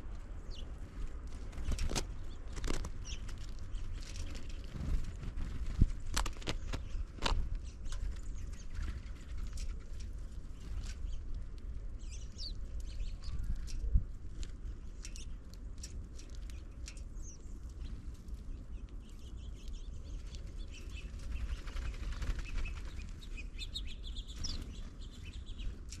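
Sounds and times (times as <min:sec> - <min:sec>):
low steady rumble: 0:00.0 - 0:26.0
finches chirping: 0:16.4 - 0:25.8.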